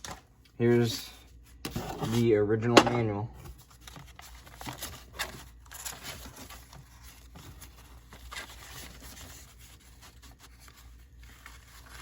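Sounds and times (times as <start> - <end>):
paper rustling and scraping: 0.8 - 12.0.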